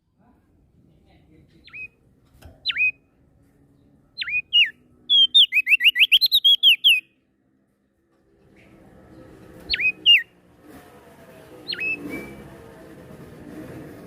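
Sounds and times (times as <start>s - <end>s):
songbird whistling: 1.6s - 2.0s, 2.6s - 3.0s, 4.2s - 7.1s, 9.7s - 10.3s, 11.6s - 12.5s.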